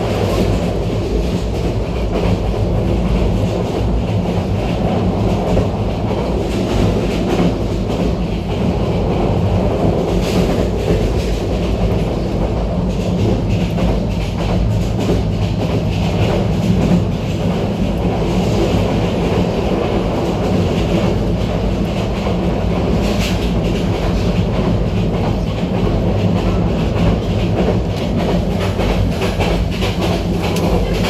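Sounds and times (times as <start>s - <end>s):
train rumbling: 0.0s - 31.0s
wheels clattering over rails: 12.9s - 31.0s.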